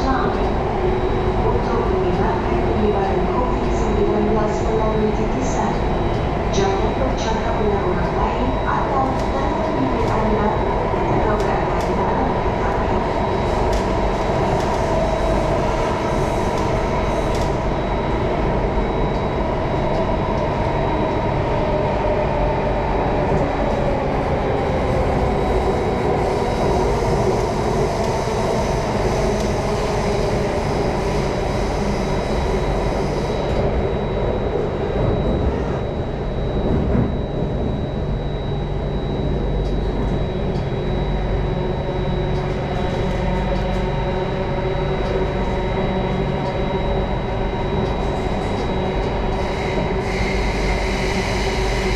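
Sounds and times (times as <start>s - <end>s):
train rumbling underground: 0.0s - 51.9s.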